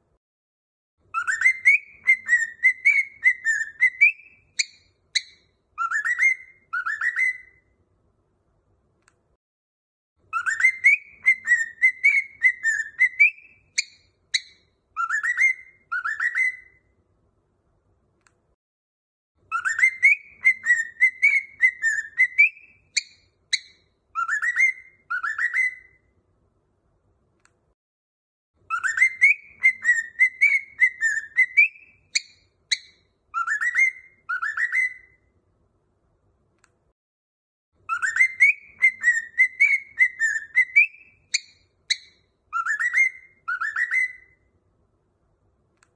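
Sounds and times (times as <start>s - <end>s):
high bird chirps: 1.0s - 7.8s, 10.2s - 17.0s, 19.4s - 26.2s, 28.6s - 35.3s, 37.8s - 44.5s
cockatiel whistling: 1.1s - 7.7s, 10.3s - 16.9s, 19.5s - 26.1s, 28.7s - 35.3s, 37.9s - 44.5s.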